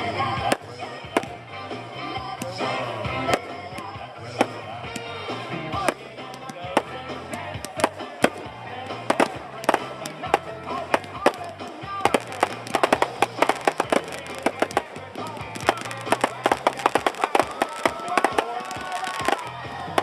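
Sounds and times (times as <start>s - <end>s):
music playing: 0.0s - 20.0s
fireworks banging and crackling: 0.4s - 1.4s, 5.7s - 20.0s.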